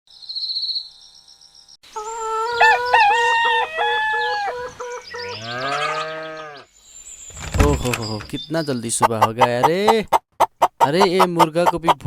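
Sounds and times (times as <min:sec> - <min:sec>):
rooster crowing: 0:02.0 - 0:06.6.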